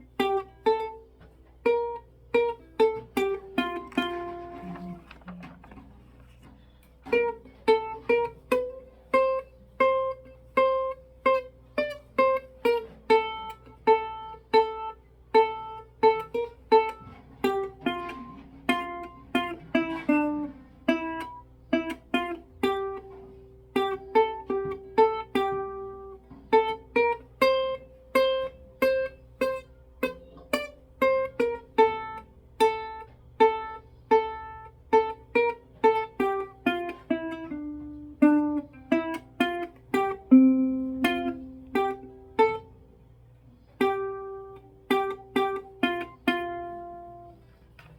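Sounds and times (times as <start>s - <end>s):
plucked single-note melody: 0.0s - 47.9s.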